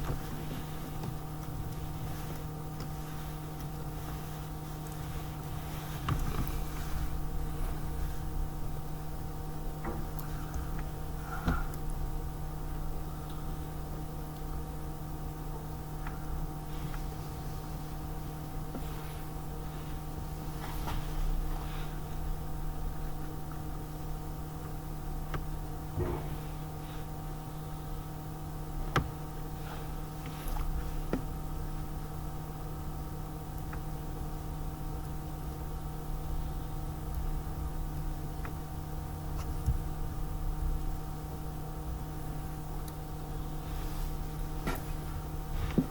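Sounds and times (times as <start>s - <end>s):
steady hum: 0.0s - 45.9s
low rumble: 24.8s - 26.9s.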